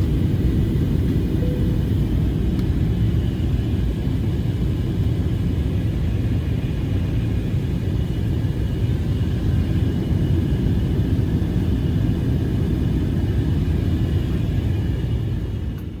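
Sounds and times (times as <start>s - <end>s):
faint high hum: 0.0s - 3.0s
steady low rumble: 0.0s - 3.6s.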